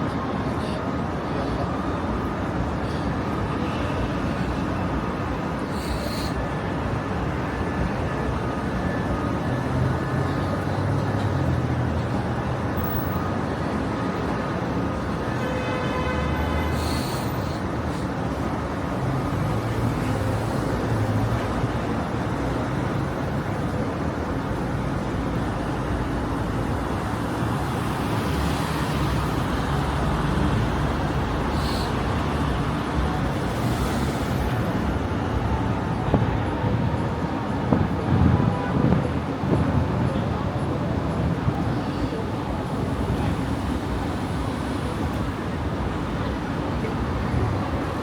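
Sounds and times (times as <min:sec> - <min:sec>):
city street traffic: 0:00.0 - 0:48.0
short high hisses: 0:05.7 - 0:06.4, 0:16.6 - 0:18.1, 0:31.5 - 0:32.0.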